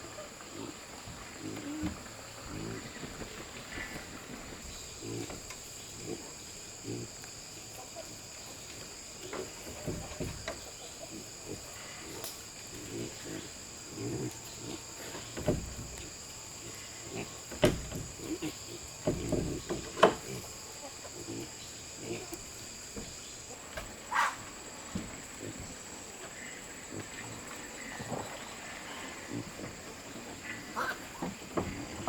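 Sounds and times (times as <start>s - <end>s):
knocks and thumps: 9.3s - 10.7s, 15.1s - 16.2s, 17.4s - 20.4s, 31.1s - 32.0s.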